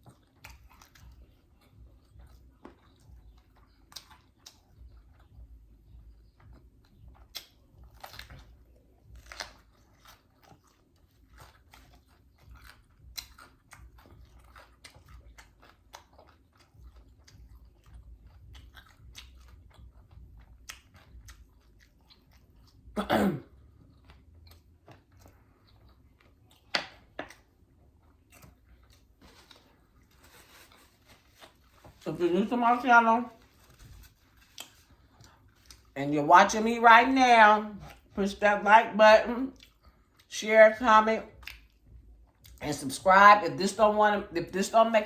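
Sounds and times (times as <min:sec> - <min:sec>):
person chewing food: 0:00.0 - 0:32.0, 0:32.7 - 0:36.0, 0:37.8 - 0:38.2, 0:39.5 - 0:40.3, 0:41.3 - 0:42.6.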